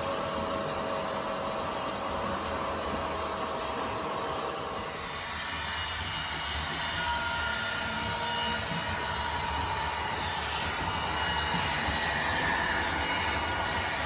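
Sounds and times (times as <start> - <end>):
train running rumble: 0.0 - 14.0
wheels squealing on rails: 4.8 - 14.0.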